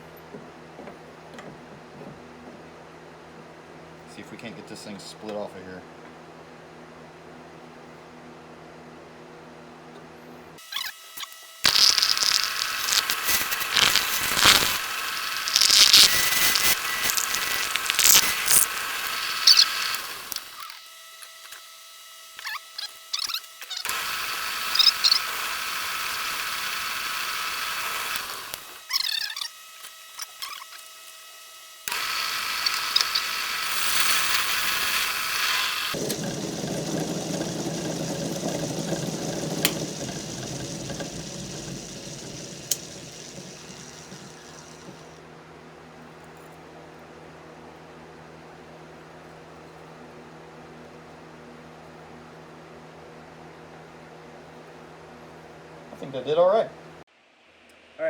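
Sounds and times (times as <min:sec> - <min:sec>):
tool hissing on wood: 0:11.7 - 0:20.5, 0:23.9 - 0:28.7, 0:31.9 - 0:45.2
wood lathe spinning: 0:11.7 - 0:20.5, 0:23.9 - 0:28.8, 0:31.9 - 0:45.2.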